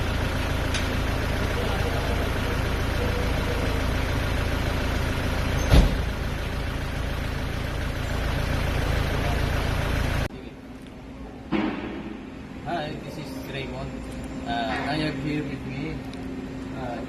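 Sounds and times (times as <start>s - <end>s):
truck engine idling: 0.0s - 17.0s
sharp knock: 11.5s - 12.3s.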